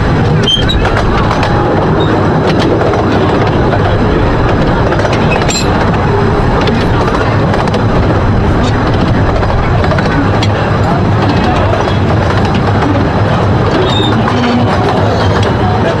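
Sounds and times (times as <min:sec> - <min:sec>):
rumble of train wheels on track: 0:00.0 - 0:16.0
high wheel squeals: 0:00.4 - 0:00.9, 0:13.8 - 0:14.3.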